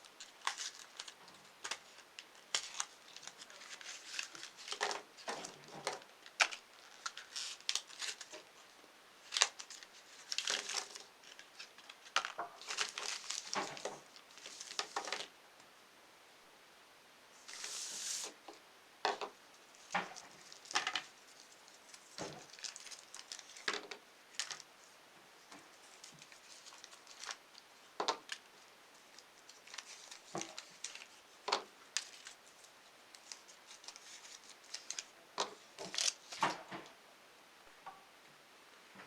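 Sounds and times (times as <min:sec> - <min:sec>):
packaging crinkling and tearing: 0:00.0 - 0:08.6, 0:09.2 - 0:15.3, 0:19.8 - 0:24.7, 0:25.8 - 0:36.6.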